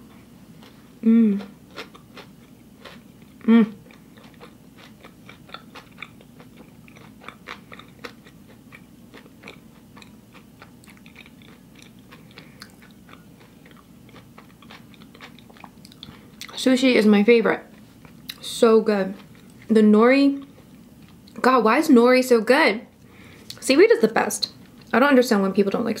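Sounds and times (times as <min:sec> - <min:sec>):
faint low hum: 0:00.0 - 0:26.0
person chewing with mouth clicks: 0:00.6 - 0:16.6, 0:17.7 - 0:18.4.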